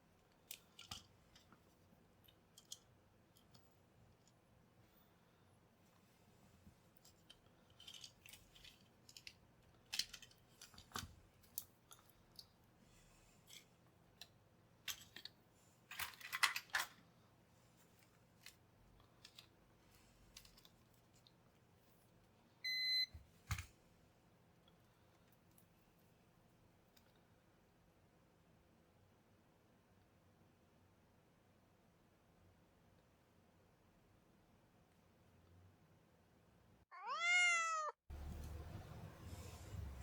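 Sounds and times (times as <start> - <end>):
small parts clicking and scraping: 0.3 - 4.4, 6.9 - 12.6, 13.2 - 17.1, 17.9 - 21.3.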